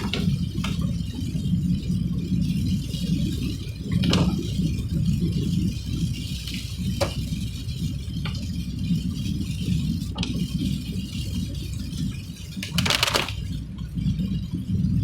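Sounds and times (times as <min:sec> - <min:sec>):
sharp rattling clicks: 0:12.6 - 0:13.4.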